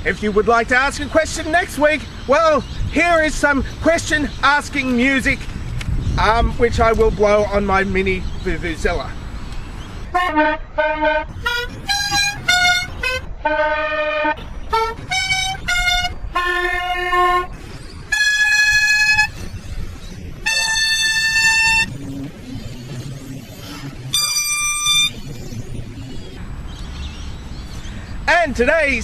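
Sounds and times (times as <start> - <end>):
vuvuzela toots: 10.1 - 19.7, 20.4 - 22.0, 24.1 - 25.2.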